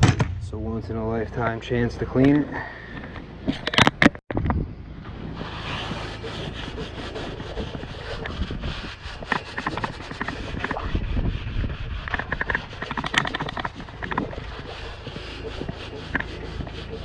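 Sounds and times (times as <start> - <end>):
scrubbing and scraping grime: 5.2 - 17.0.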